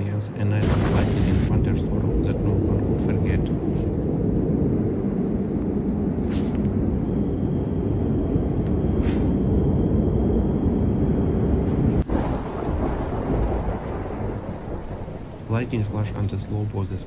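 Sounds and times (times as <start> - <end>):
thunder rumbling: 0.5 - 17.0
sharp thunder cracks: 0.6 - 5.1, 11.9 - 16.3.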